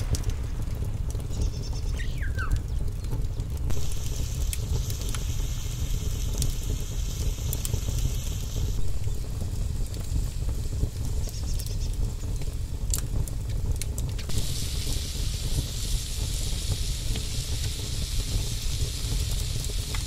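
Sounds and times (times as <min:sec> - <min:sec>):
low rumble: 0:00.0 - 0:11.3, 0:13.3 - 0:20.0
vegetables sizzling in oil: 0:03.6 - 0:13.2, 0:14.1 - 0:20.0.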